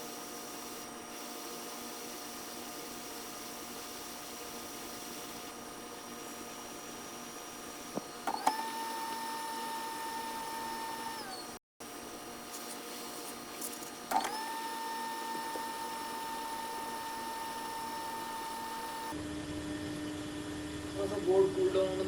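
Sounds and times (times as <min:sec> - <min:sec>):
electrical hum: 0:00.0 - 0:22.0
small motor whining: 0:06.7 - 0:11.6, 0:13.6 - 0:19.2.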